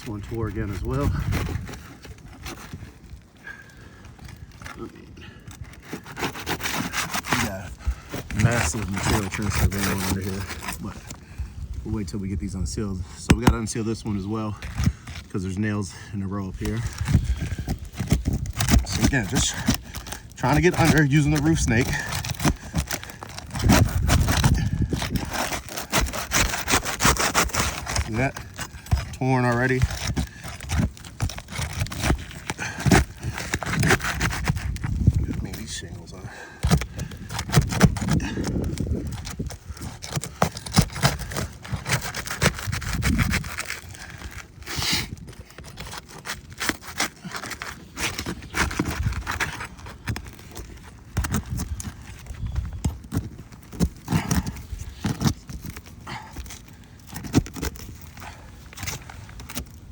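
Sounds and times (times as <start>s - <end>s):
bar scraping under shingles: 0.0s - 59.9s
shingles tearing: 0.0s - 59.9s.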